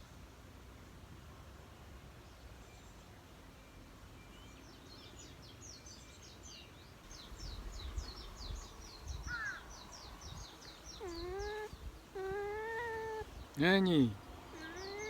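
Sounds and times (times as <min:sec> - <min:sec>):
birds chirping: 0:07.1 - 0:15.0.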